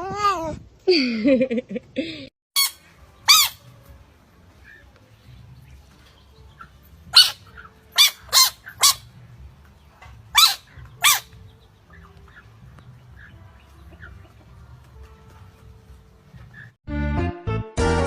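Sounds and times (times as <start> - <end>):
dog barking: 7.2 - 7.4, 8.0 - 9.0, 10.4 - 11.3.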